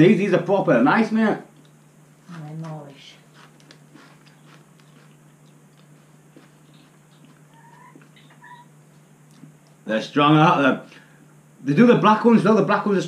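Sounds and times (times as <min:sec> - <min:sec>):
low electrical hum: 0:00.0 - 0:13.0
chewing crisps: 0:03.4 - 0:08.4.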